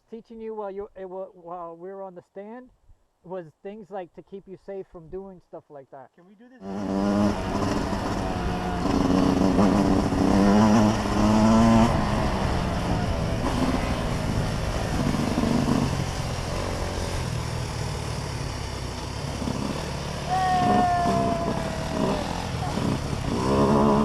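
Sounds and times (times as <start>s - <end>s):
dirt bike engine running: 6.6s - 24.0s.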